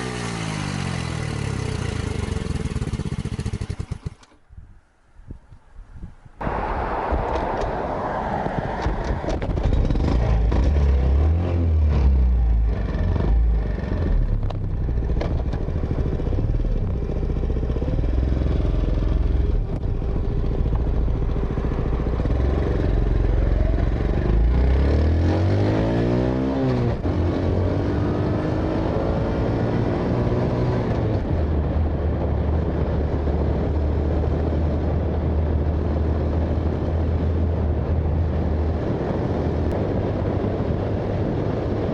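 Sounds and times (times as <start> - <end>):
motorcycle engine revving: 0.0 - 4.4, 8.8 - 37.6.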